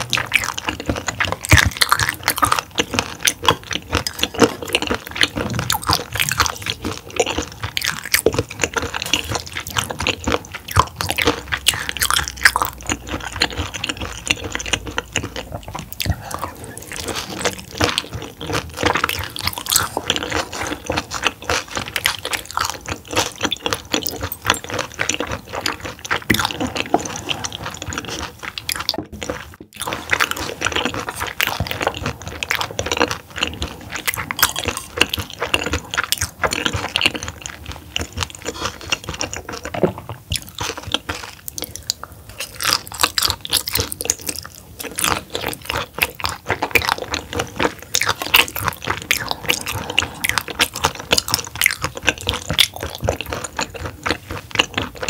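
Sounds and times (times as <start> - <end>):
chewing with mouth clicks: 0.0 - 55.0.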